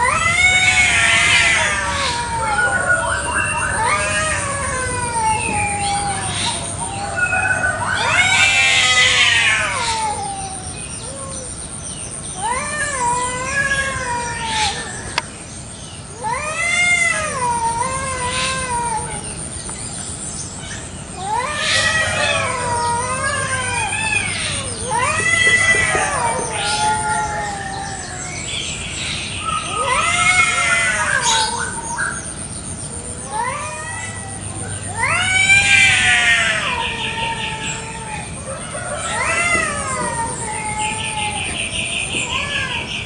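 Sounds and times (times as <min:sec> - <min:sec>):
cats yowling: 0:00.0 - 0:43.0.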